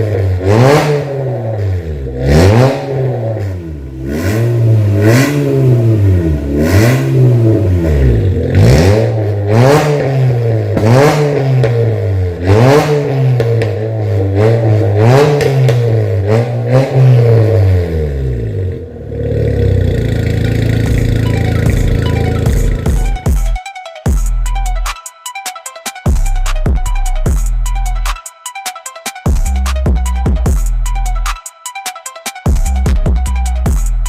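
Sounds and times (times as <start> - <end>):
car engine revving and idling: 0.0 - 23.6.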